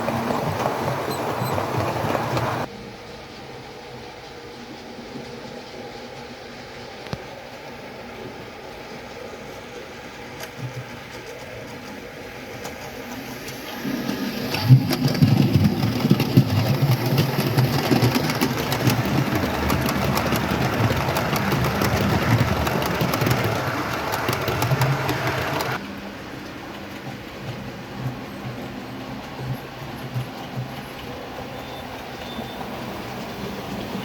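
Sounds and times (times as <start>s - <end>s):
wheels ticking over rails: 0.0s - 2.7s, 14.5s - 34.0s.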